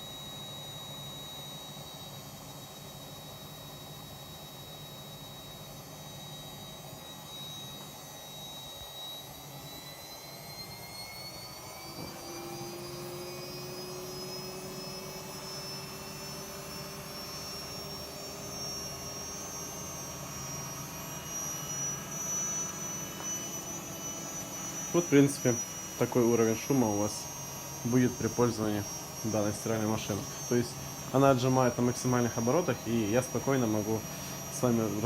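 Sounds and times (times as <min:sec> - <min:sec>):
washing machine spinning up: 0:00.0 - 0:35.0.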